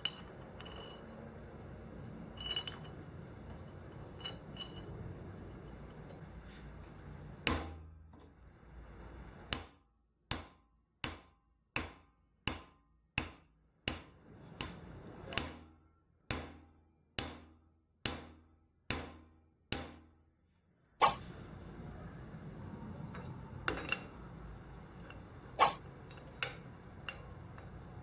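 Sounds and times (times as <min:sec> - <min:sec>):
hammer striking metal: 0:21.0 - 0:21.2, 0:22.8 - 0:28.0.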